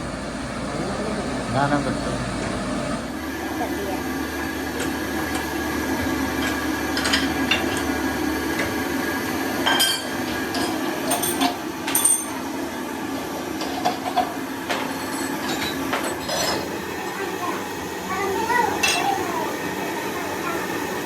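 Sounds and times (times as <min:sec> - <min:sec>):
hand tools tapping on metal: 0:09.6 - 0:12.4, 0:18.8 - 0:19.2.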